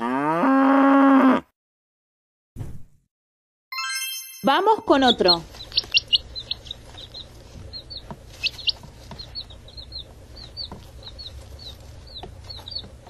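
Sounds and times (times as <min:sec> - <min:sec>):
baby chick peeping: 0:04.9 - 0:13.0
steady low hum: 0:04.9 - 0:13.0.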